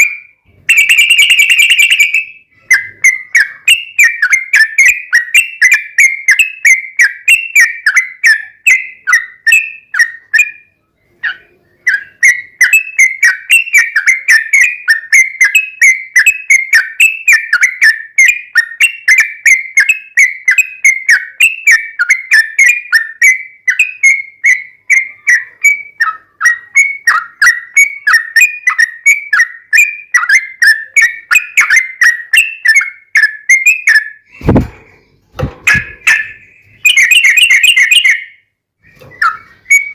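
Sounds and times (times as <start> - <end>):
bird singing bubbly whistled notes: 0.0 - 34.7, 35.7 - 39.9
brief thump: 34.4 - 36.0.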